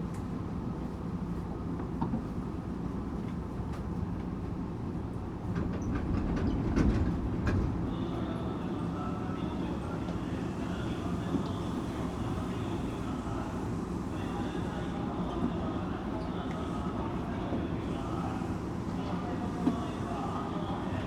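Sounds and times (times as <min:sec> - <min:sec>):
electric train rumbling: 0:04.2 - 0:21.0
train clicks: 0:05.5 - 0:07.8.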